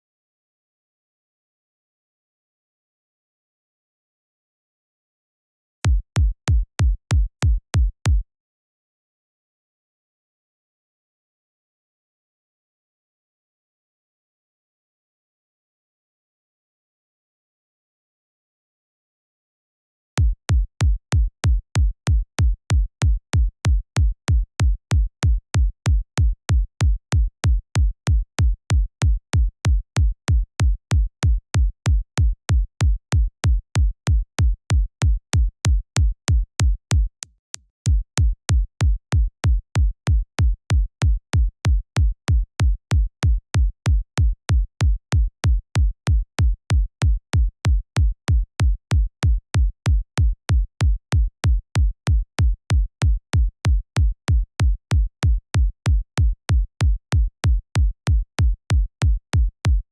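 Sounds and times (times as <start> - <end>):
electronic kick drum loop: 5.9 - 7.9, 31.9 - 37.1, 37.9 - 58.8.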